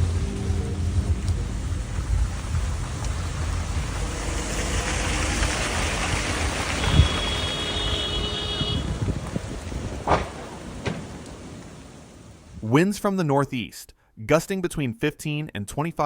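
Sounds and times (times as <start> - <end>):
road vehicle rumble: 0.0 - 12.6
thump: 10.1 - 11.1.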